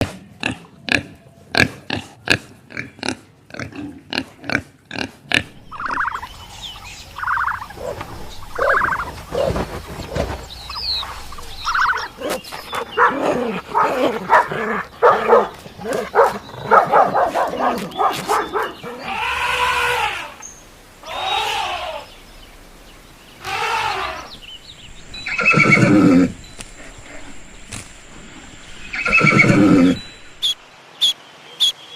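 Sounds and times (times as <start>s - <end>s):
pigs grunting: 0.0s - 20.4s, 25.0s - 30.5s
pigs squealing: 4.1s - 20.4s, 21.0s - 22.1s, 23.4s - 24.4s, 25.1s - 30.6s.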